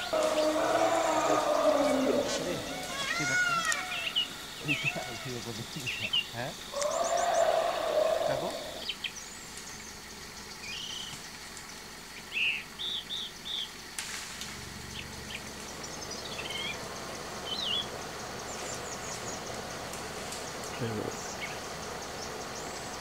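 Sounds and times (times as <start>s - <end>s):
birds chirping and whistling: 0.0s - 13.8s, 14.9s - 23.0s
drawn-out bird call: 0.0s - 13.8s, 14.7s - 23.0s.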